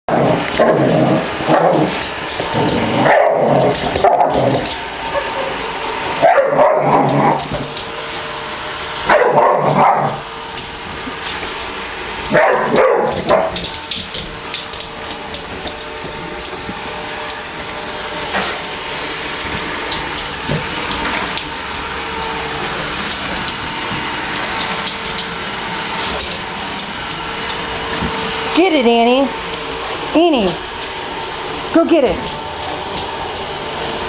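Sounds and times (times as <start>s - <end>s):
robot vacuum humming and clicking: 0.1s - 34.0s
dog barking: 1.5s - 2.0s, 3.0s - 7.4s, 9.1s - 10.2s, 12.3s - 13.6s.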